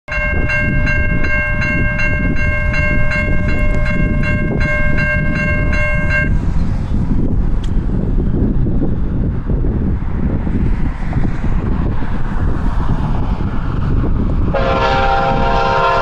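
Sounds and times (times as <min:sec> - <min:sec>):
bell ringing: 0:00.1 - 0:06.4
train rumbling past: 0:00.1 - 0:16.0.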